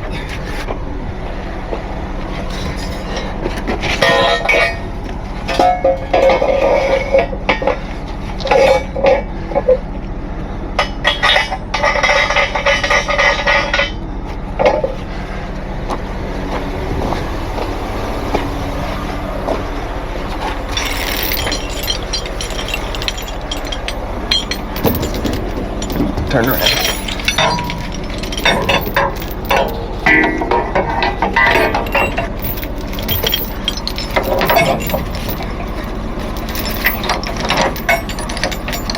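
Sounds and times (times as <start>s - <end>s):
steel chains clinking and rattling: 20.6s - 38.9s.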